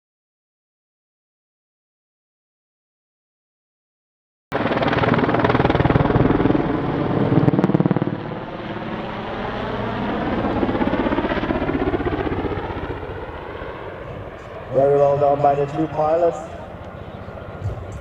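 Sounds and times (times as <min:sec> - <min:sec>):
helicopter rotor chopping: 0:04.6 - 0:18.0.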